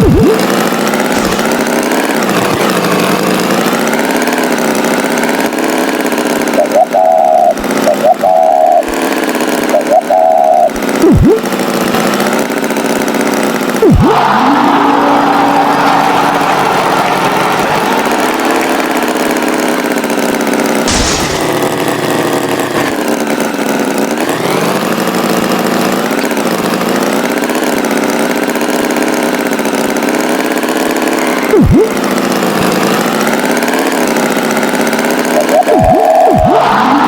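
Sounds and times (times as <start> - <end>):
swooping sound effect: 0.0 - 3.2, 9.7 - 11.5, 13.8 - 19.1, 31.2 - 32.1, 35.3 - 37.0
cartoon tractor engine running: 0.0 - 37.0.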